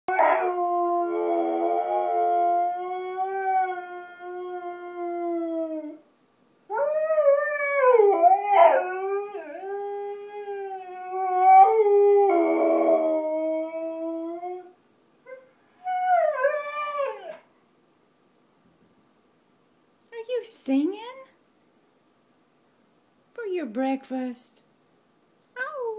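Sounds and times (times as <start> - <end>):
husky howling: 0.1 - 6.0, 6.7 - 14.8, 15.8 - 17.5.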